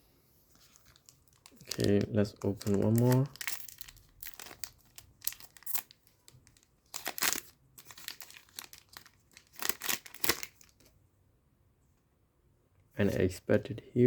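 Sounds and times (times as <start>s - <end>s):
foil pack tearing and crinkling: 1.0s - 10.8s.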